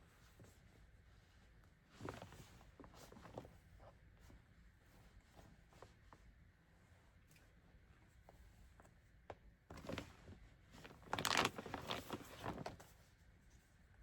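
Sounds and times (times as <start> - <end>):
bag rustling and crinkling: 10.9 - 12.7.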